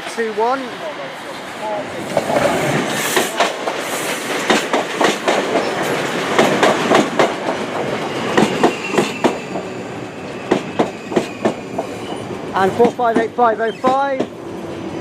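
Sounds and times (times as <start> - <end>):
train wheels clattering over rail joints: 2.0 - 9.7, 10.3 - 14.4.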